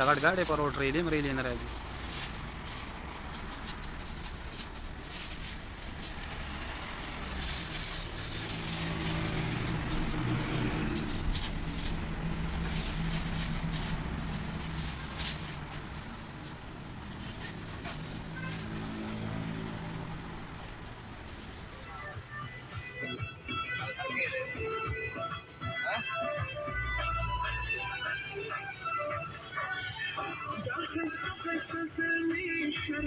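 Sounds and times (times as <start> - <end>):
truck engine running: 0.0 - 22.8
constant hiss: 0.0 - 23.2.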